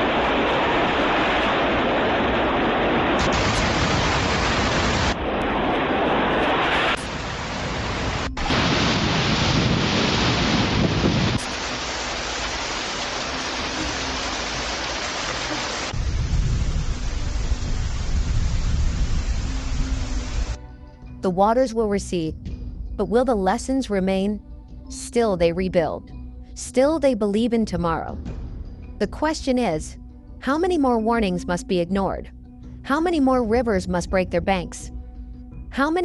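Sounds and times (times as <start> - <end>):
heavy rain: 0.0 - 20.6
rushing water: 0.0 - 20.6.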